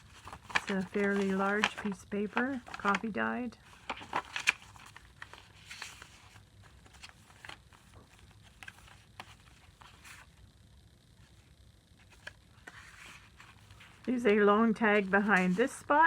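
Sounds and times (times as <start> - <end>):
paper rustling and tapping: 0.0 - 3.0, 3.8 - 10.2.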